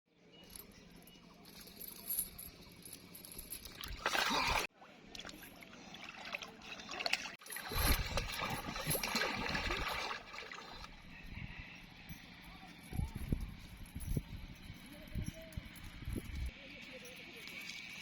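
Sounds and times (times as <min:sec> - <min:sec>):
water splashing and sloshing: 0:03.6 - 0:11.0.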